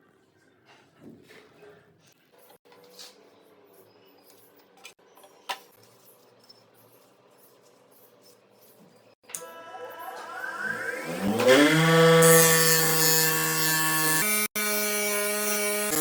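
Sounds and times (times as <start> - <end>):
electric power tool motor: 9.4 - 16.0.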